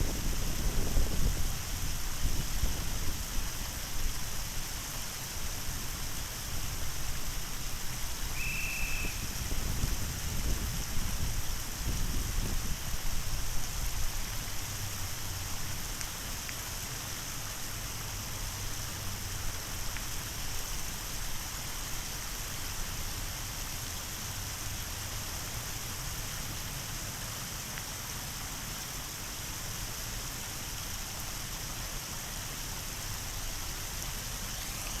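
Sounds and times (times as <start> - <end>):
waterfall rushing: 6.9 - 10.3, 33.8 - 35.0.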